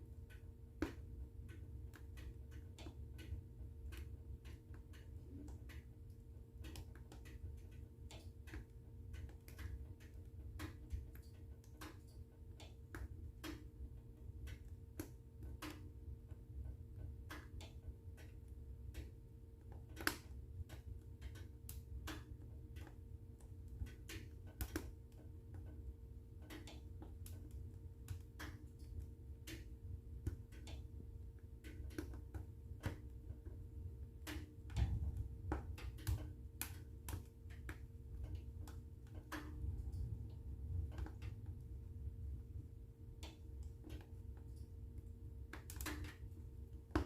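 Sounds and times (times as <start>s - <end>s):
faint steady hum: 0.0s - 47.0s
wood fire crackling: 0.0s - 47.0s
low rumble of flames: 12.9s - 47.0s.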